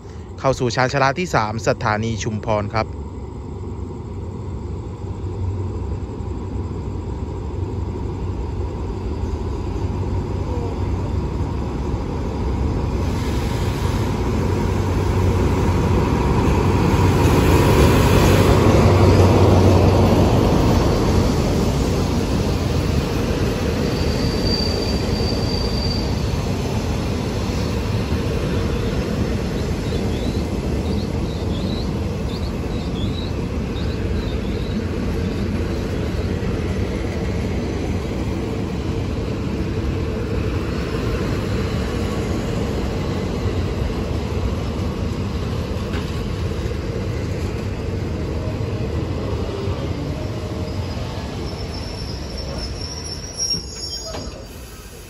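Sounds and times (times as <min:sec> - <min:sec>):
train wheels rumbling on track: 0:00.0 - 0:55.0
short high squeaks: 0:50.7 - 0:54.9.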